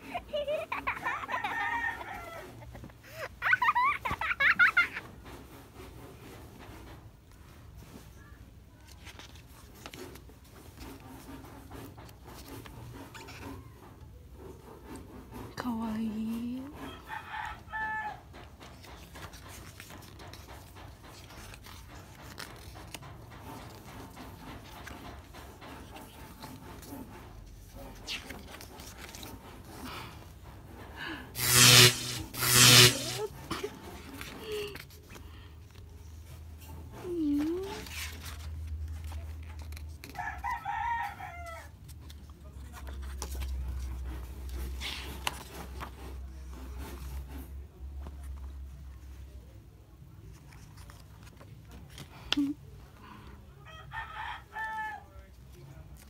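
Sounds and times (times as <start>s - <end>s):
book pages turning: 8.0s - 13.5s, 18.6s - 30.0s, 31.4s - 33.3s, 37.3s - 40.3s, 41.9s - 47.3s, 50.2s - 52.5s.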